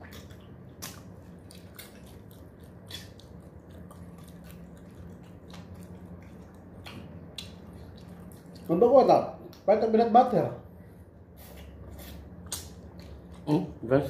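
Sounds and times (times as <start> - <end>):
soft wet mouth clicks: 0.0 - 8.6, 11.4 - 13.4
person chewing food: 0.0 - 8.8, 11.4 - 13.8
steady low hum: 0.0 - 14.0.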